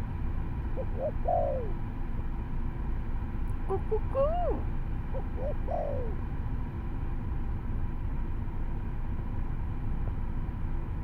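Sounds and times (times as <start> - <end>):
steady low rumble: 0.0 - 11.0
dove cooing: 0.8 - 1.8, 3.7 - 6.2.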